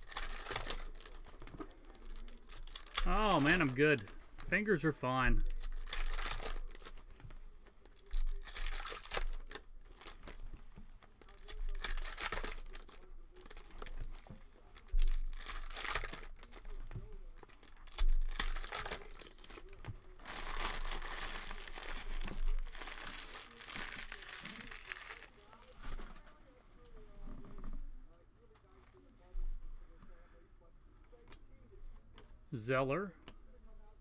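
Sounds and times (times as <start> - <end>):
foil wrappers tearing and crinkling: 0.0 - 26.3.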